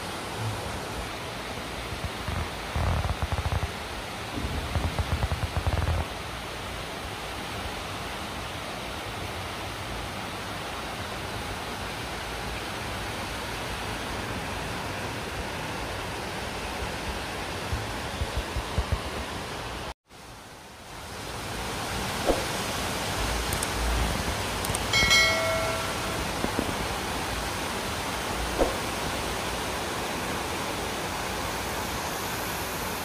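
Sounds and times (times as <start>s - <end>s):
heavy rain and wind: 0.0s - 33.0s
wind buffeting the microphone: 1.9s - 6.3s.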